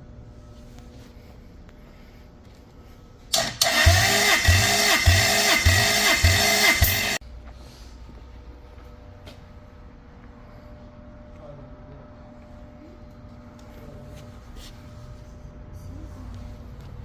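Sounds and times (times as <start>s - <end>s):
starter motor cranking engine: 3.3s - 7.2s.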